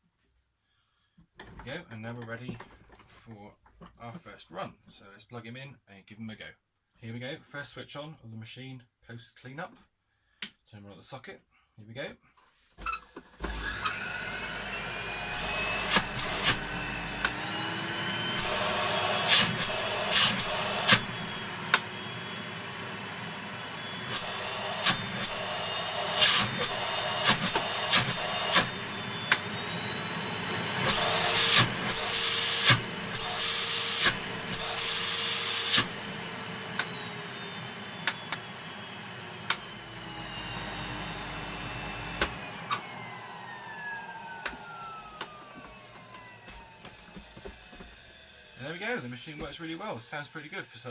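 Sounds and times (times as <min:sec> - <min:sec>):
vacuum cleaner motor whining: 0:12.8 - 0:50.9.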